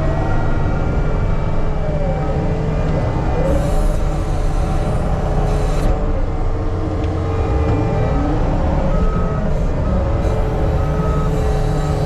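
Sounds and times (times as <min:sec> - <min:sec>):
heavy diesel engine rumbling: 0:08.8 - 0:12.0
backup alarm beeping: 0:10.2 - 0:12.0.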